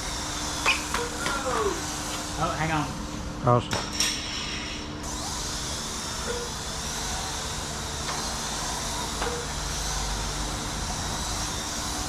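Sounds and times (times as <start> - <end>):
small electric motors whining: 0.0 - 3.3, 4.0 - 12.0.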